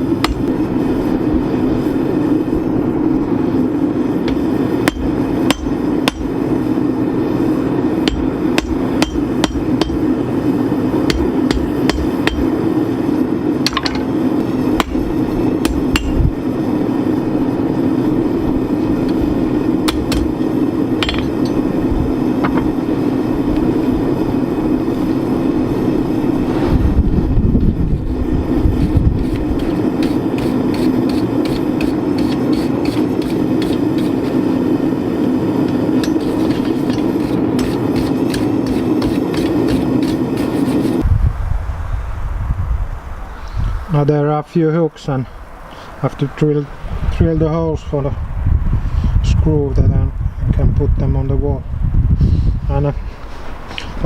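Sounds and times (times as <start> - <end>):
hammer on hot iron: 0.0 - 0.7, 4.2 - 6.4, 8.0 - 10.2, 11.0 - 12.6, 13.6 - 16.4, 19.8 - 21.7, 29.2 - 34.3, 35.6 - 41.0
steady hum: 0.0 - 44.0.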